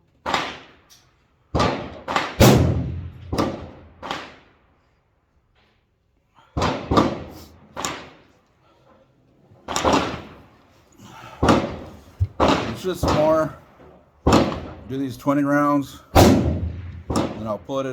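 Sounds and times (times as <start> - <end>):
rifle shots echoing: 1.5 - 4.5, 6.6 - 8.2, 11.4 - 13.5, 14.2 - 14.9, 16.2 - 17.8.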